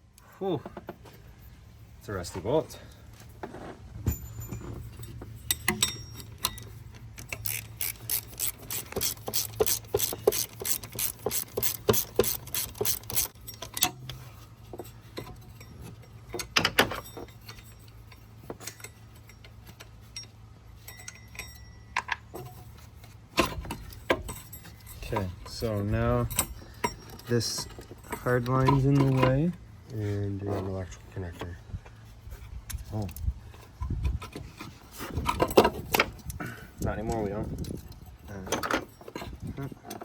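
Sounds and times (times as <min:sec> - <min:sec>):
steady low hum: 0:00.0 - 0:40.0
ratchet wrench clicking: 0:05.5 - 0:13.9.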